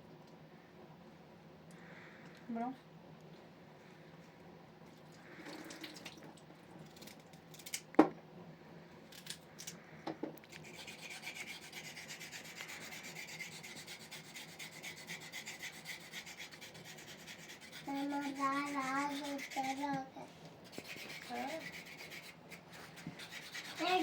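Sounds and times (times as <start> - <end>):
fast steady scraping: 10.5 - 24.0.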